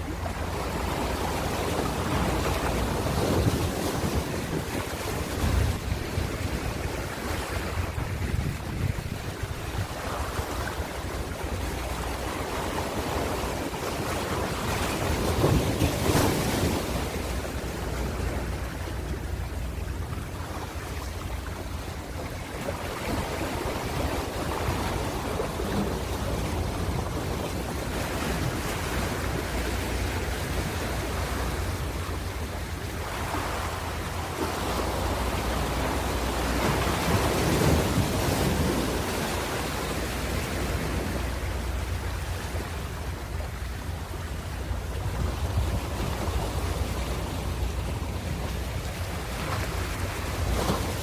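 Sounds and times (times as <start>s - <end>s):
ocean waves breaking on shore: 0.0s - 51.0s.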